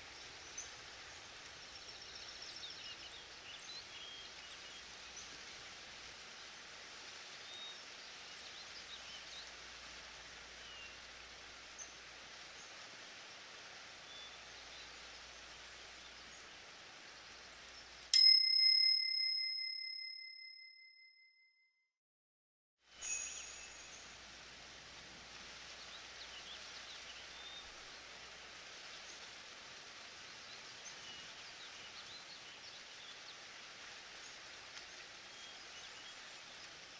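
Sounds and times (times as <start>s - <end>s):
loud bell ring: 18.2s - 20.8s, 23.0s - 24.2s
short click-like ring: 23.0s - 24.0s
forest ambience: 23.0s - 36.9s.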